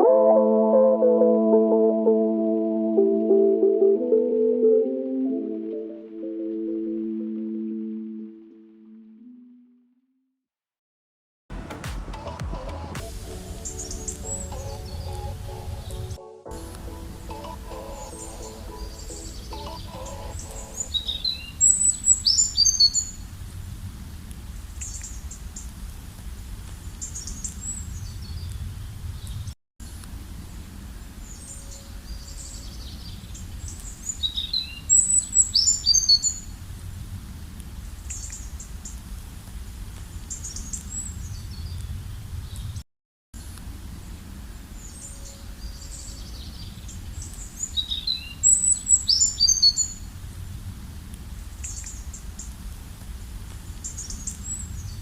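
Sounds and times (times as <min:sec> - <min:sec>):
songbirds singing and chirping: 0:17.3 - 0:23.1, 0:44.9 - 0:50.0.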